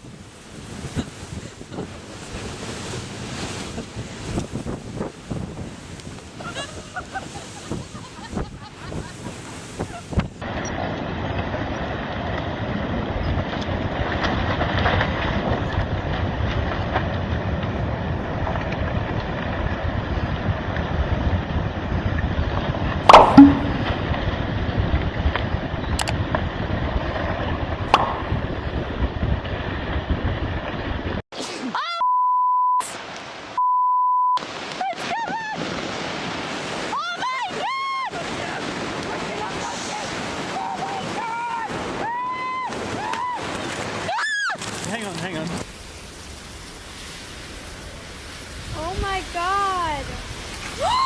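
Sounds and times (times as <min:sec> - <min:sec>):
wind buffeting microphone: 0:00.0 - 0:31.2
sharp knock: 0:23.1 - 0:24.0
long censor bleep: 0:32.0 - 0:32.9, 0:33.6 - 0:34.4.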